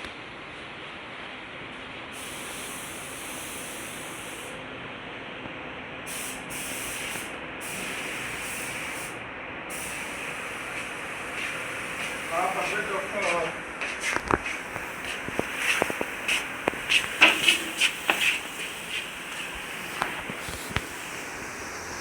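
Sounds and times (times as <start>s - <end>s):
steady hissing noise: 2.1s - 4.6s, 6.1s - 22.0s.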